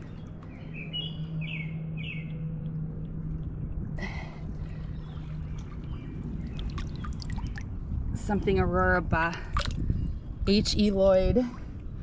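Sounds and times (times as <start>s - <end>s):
bird chirping: 0.0s - 2.7s.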